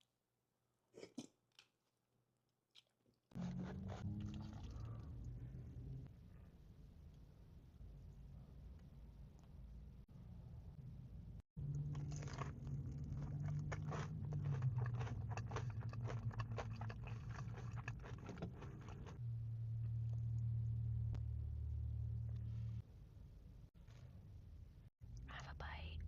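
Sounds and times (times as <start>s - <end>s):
crunchy bites and chewing: 11.6s - 19.2s.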